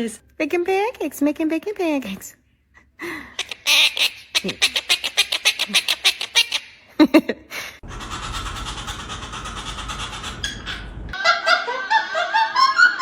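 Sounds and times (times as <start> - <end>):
parrot squawks: 3.4 - 6.7.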